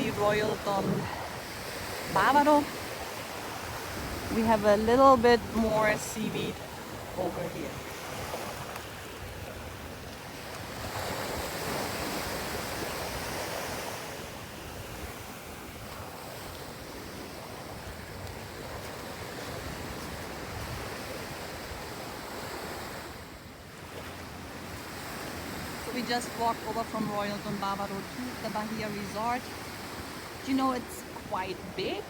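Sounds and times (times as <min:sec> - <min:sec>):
wind buffeting microphone: 0:00.0 - 0:13.4
surf washing onto beach: 0:00.0 - 0:32.0.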